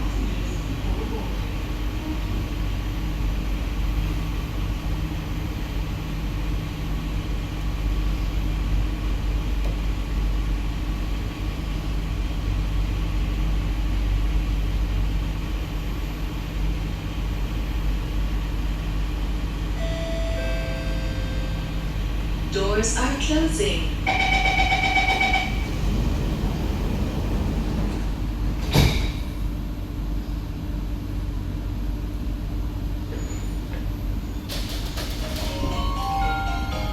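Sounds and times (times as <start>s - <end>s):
train cabin hum and rumble: 0.0s - 36.9s
door-closing chime: 24.1s - 25.8s, 35.3s - 36.9s.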